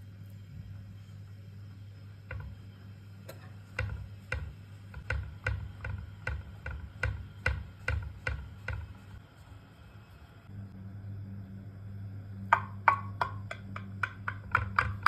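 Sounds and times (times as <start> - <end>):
low hum: 9.0 - 14.5.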